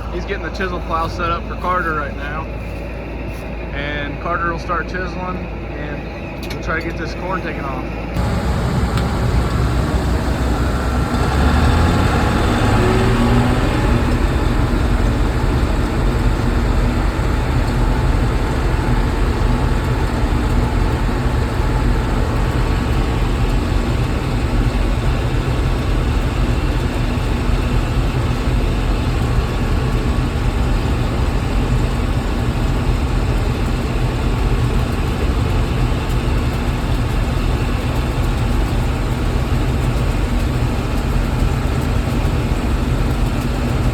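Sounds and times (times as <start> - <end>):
combine engine drone: 7.6 - 43.9.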